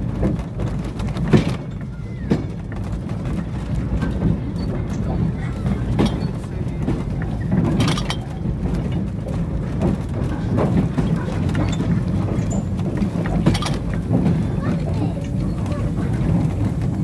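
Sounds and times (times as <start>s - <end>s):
train rumbling on track: 0.0s - 17.0s
wheels clanking over rail joints: 0.0s - 17.0s.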